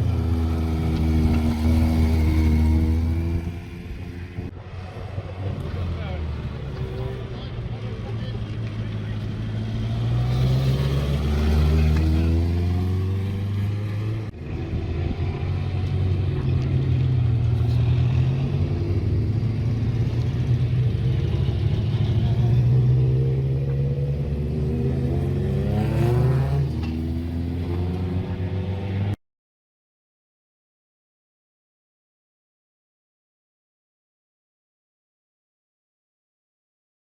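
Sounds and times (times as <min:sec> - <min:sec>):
race car engines revving past: 0:00.0 - 0:29.2.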